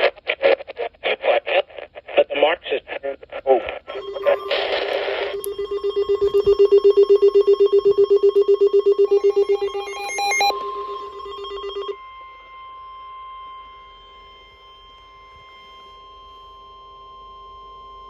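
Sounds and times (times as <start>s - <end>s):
rapid pulsing alarm beeps: 3.9s - 12.0s
steady high alarm tone: 3.9s - 18.0s.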